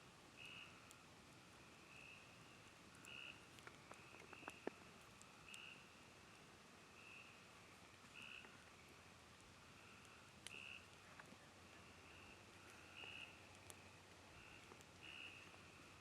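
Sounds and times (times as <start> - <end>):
campfire crackling and popping: 0.0 - 16.0
frogs calling: 3.0 - 4.7, 8.1 - 8.6, 9.8 - 11.0, 11.7 - 15.8.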